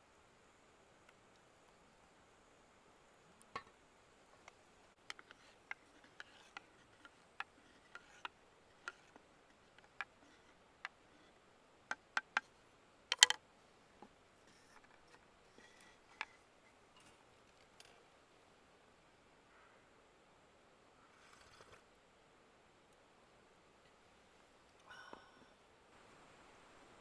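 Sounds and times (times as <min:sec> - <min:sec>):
campfire crackling: 0:01.0 - 0:13.3.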